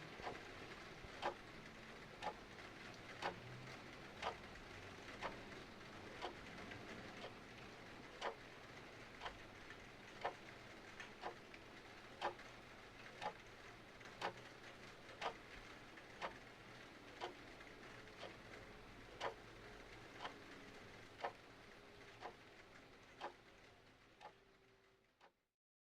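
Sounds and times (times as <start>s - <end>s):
faint rain hiss: 0.0s - 25.3s
mechanical clock ticking: 0.2s - 0.4s, 1.1s - 1.4s, 2.2s - 2.4s, 3.1s - 3.5s, 4.2s - 6.5s, 7.1s - 7.4s, 8.0s - 8.4s, 9.2s - 22.5s, 23.1s - 23.5s, 24.2s - 24.4s.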